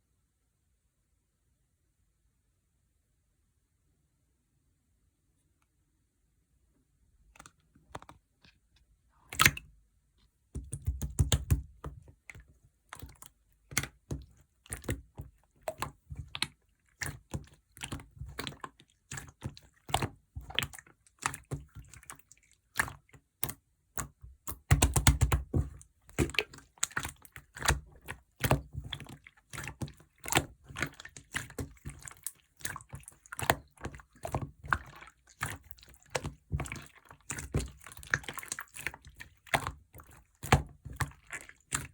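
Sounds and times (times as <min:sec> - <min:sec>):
slime squished by hand: 0:09.2 - 0:09.7, 0:10.6 - 0:41.9.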